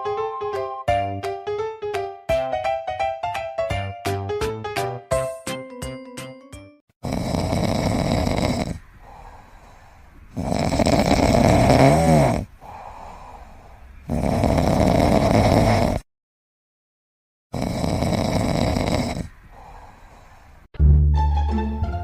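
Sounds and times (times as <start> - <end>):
piano notes: 0.0 - 6.8, 20.8 - 22.0
loud snoring: 7.0 - 9.2, 10.3 - 13.4, 14.0 - 16.1, 17.5 - 20.0.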